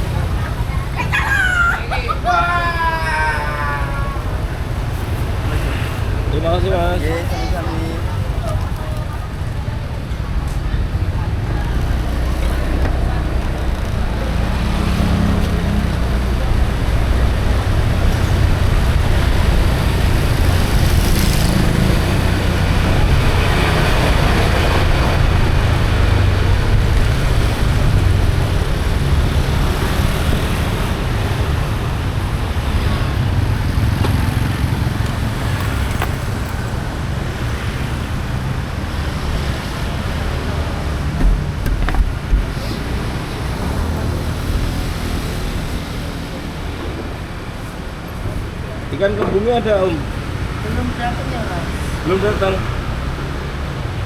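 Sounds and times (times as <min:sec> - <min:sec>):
traffic rumble: 0:00.0 - 0:54.0.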